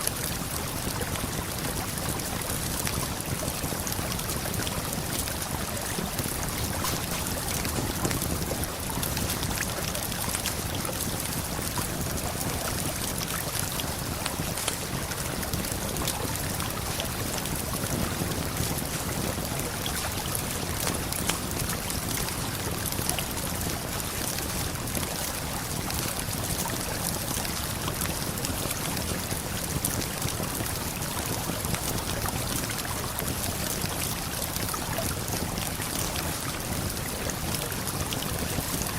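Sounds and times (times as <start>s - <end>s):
waterfall and flowing river: 0.0s - 38.9s.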